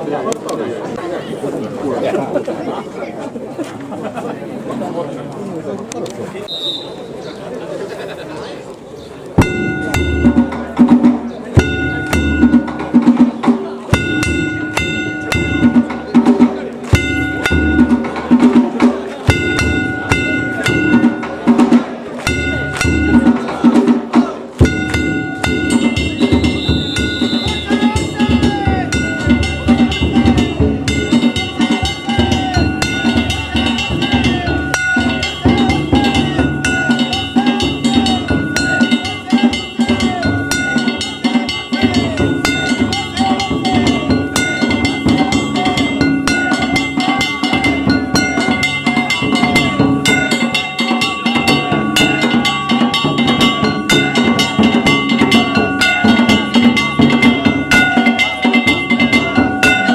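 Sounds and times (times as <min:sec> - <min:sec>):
metal hand gongs ringing: 0:09.4 - 0:24.0, 0:24.6 - 0:59.9
taiko drum: 0:09.4 - 0:59.9.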